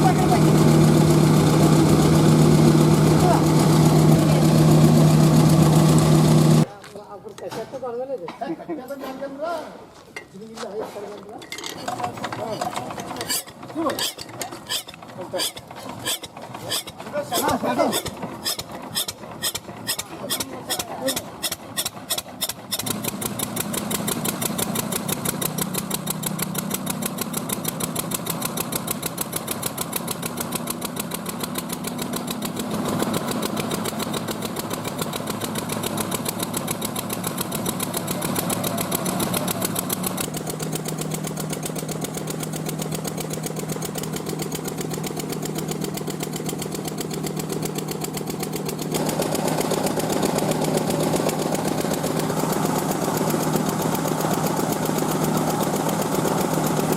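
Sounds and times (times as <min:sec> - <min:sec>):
machinery pulsing: 0:00.0 - 0:06.7.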